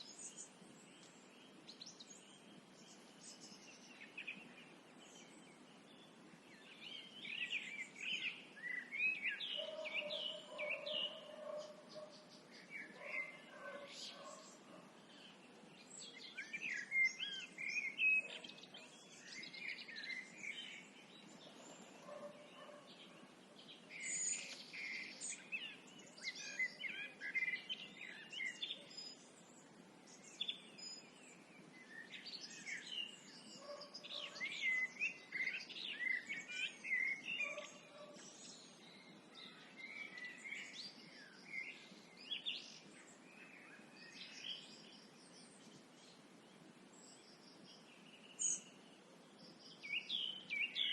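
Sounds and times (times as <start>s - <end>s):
faint outdoor background: 0.0s - 50.9s
songbirds singing: 0.0s - 50.9s.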